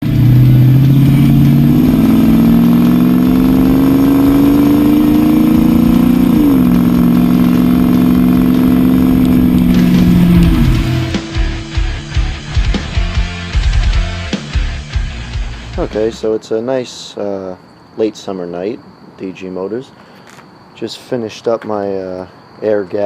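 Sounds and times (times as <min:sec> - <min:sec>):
car engine accelerating: 0:00.0 - 0:15.1.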